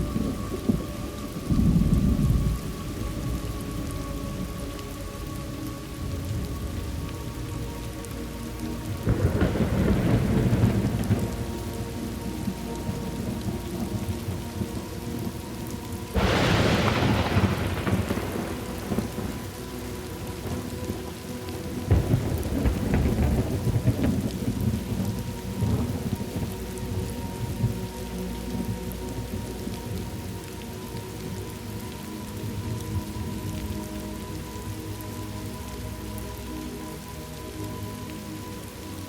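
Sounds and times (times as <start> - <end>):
low rolling thunder: 0.0 - 4.6, 8.8 - 21.1, 21.7 - 30.4
steady rain: 0.0 - 39.0
sharp thunderclap: 16.2 - 19.4.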